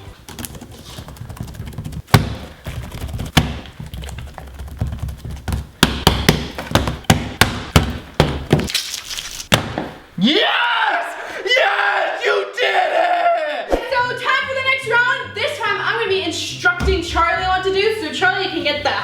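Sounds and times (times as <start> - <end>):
sharp knocks and cracks: 1.7 - 10.0.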